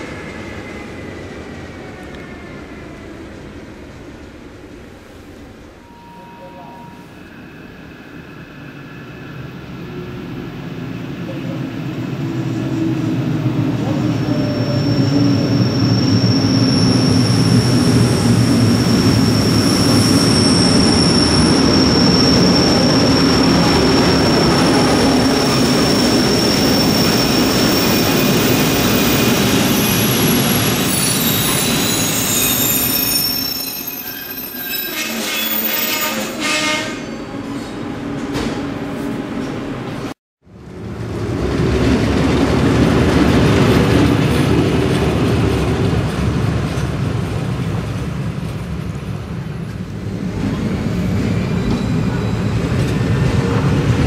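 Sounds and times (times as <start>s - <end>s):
high-pitched wheel squeal: 25.7s - 36.6s
train rumble: 34.9s - 54.0s.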